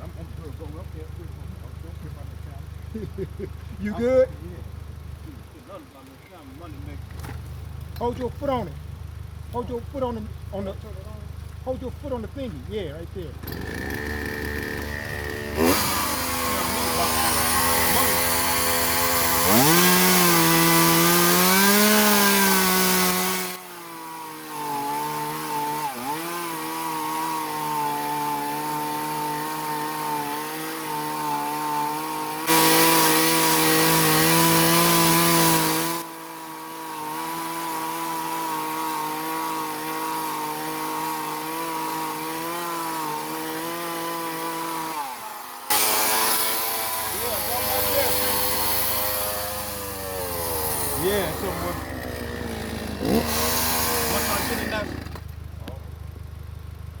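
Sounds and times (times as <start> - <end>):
chainsaw cutting wood: 13.2 - 56.2.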